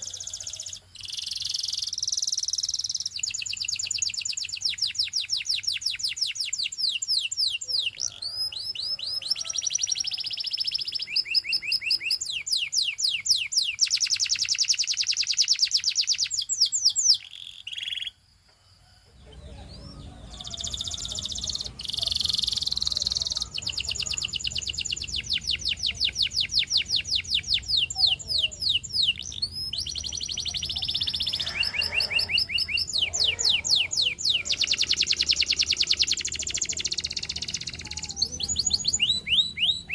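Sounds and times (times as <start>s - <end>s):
canary singing trills: 0.0s - 18.2s, 18.9s - 39.9s
faint low hum: 18.4s - 39.9s.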